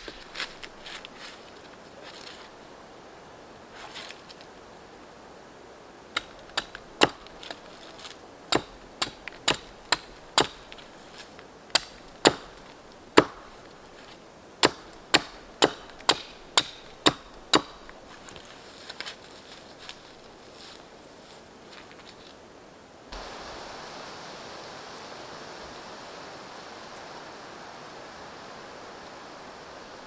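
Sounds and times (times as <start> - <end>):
axe chopping wood: 6.2 - 7.6, 8.5 - 10.7, 11.7 - 12.6, 13.2 - 13.6, 14.6 - 17.9.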